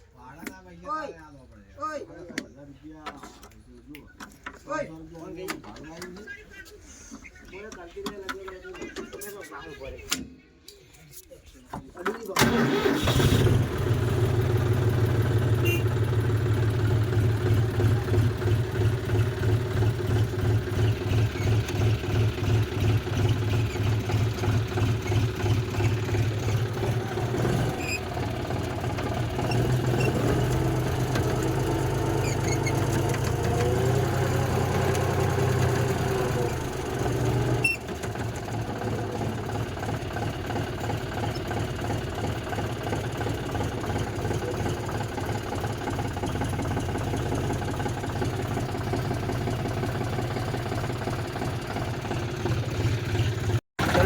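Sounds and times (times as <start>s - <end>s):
diesel tractor engine chugging: 12.4s - 54.0s.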